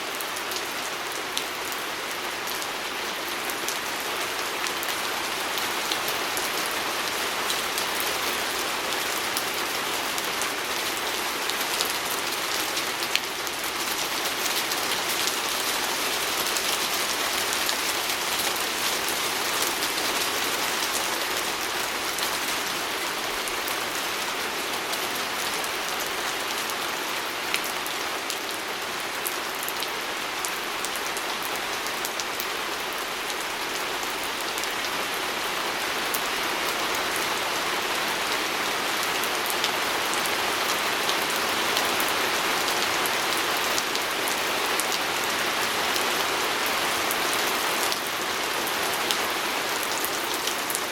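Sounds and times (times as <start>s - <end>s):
rain pattering on a window: 0.1s - 35.2s.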